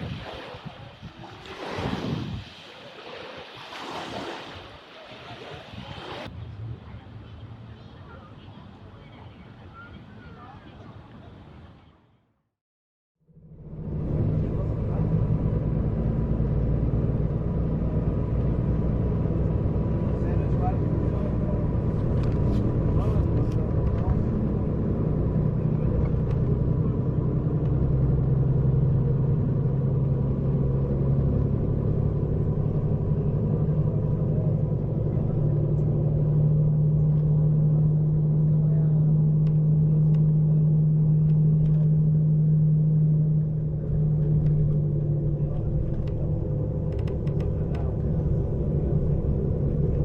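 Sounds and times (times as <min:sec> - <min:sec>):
diesel bus engine humming: 0:13.3 - 0:50.0.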